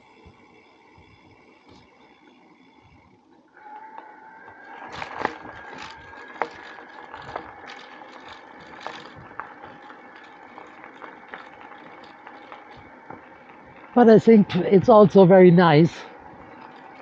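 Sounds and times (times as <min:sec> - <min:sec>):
steady high whine: 0:00.0 - 0:17.0
bicycle rattling on bumpy track: 0:03.8 - 0:17.0.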